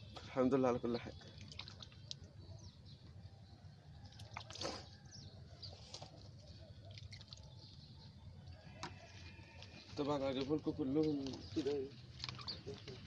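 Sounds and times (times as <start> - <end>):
water dripping and splashing: 0.2 - 2.4, 4.0 - 4.9, 6.8 - 7.9.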